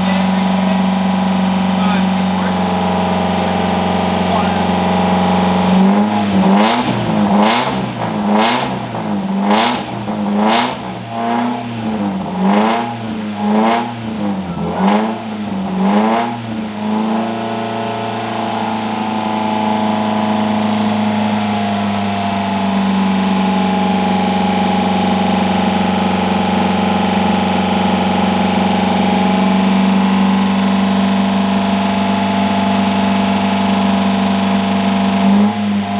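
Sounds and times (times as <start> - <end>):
car engine revving: 0.0 - 35.9.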